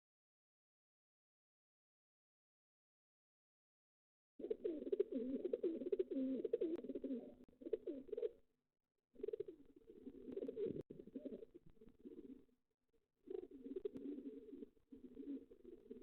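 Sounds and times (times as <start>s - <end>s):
pigeons cooing: 4.4s - 8.4s, 9.2s - 12.5s, 13.2s - 16.0s.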